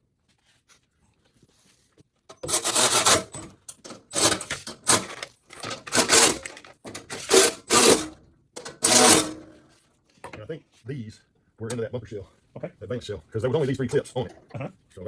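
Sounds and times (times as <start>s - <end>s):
scraping strokes: 8.8s - 9.8s.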